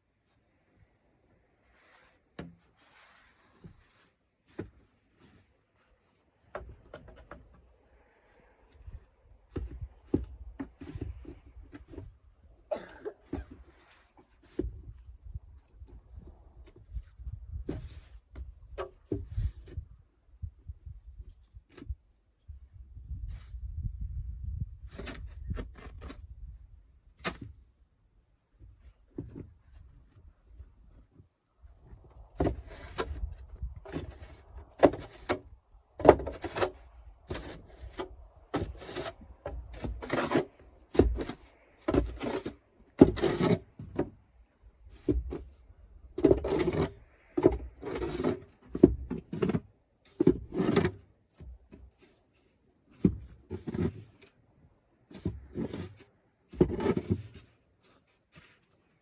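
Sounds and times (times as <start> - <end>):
scrapes and knocks: 28.5 - 54.4, 55.0 - 59.0.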